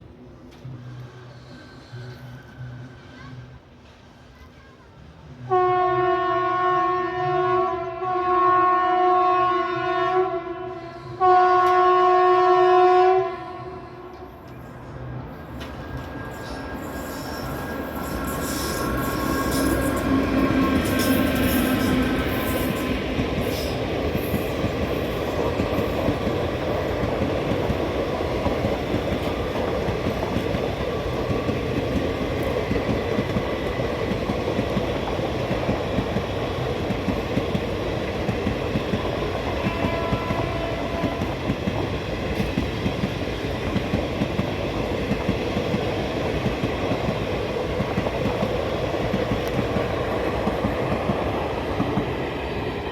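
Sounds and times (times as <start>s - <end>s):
train passing at speed: 0.0s - 52.9s
wheel squeal: 15.6s - 22.6s.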